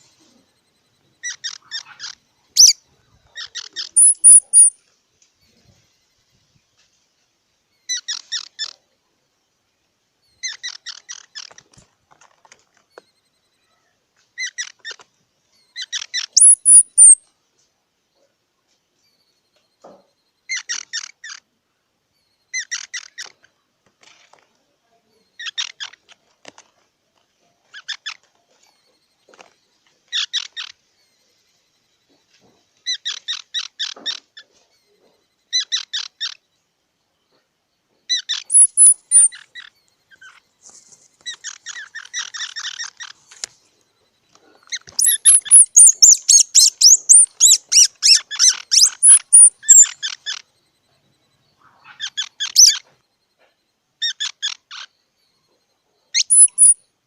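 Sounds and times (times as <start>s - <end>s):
squirrel chattering: 1.2s - 4.8s, 15.8s - 17.2s, 38.1s - 40.4s, 41.3s - 43.3s, 44.5s - 50.5s, 51.6s - 52.9s, 54.0s - 54.9s, 56.1s - 56.8s.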